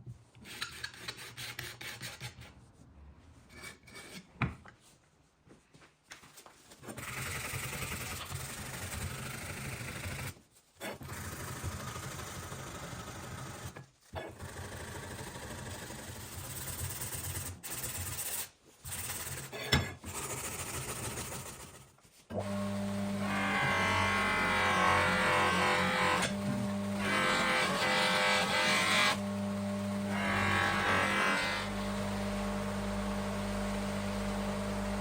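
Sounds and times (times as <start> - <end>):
workshop tool pulsing hum: 22.3 - 35.0.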